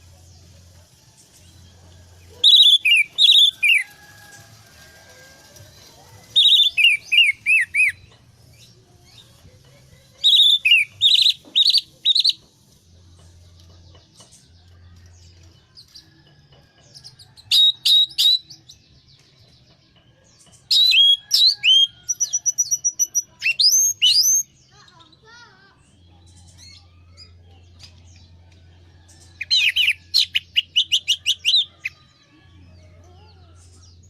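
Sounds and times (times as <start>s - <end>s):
thrush singing whistled notes: 2.4s - 4.0s, 6.3s - 8.1s, 10.2s - 12.4s, 20.7s - 24.5s.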